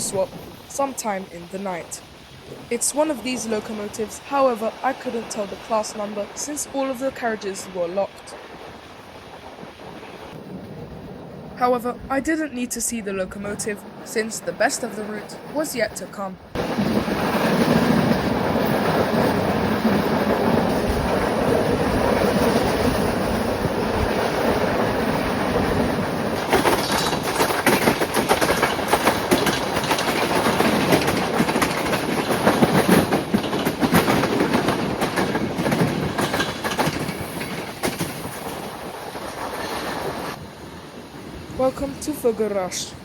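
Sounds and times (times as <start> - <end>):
train carriage rumbling: 0.0 - 43.0
wheel clicks and knocks: 26.3 - 38.6.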